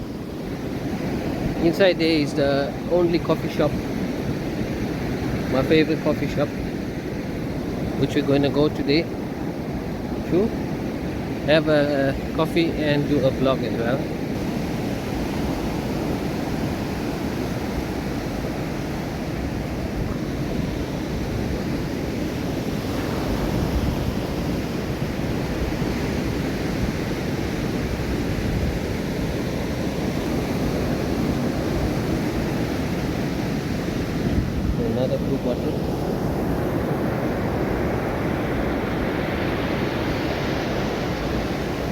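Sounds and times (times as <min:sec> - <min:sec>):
ocean surf washing onto beach: 0:00.0 - 0:41.9
wind on microphone: 0:13.8 - 0:41.9.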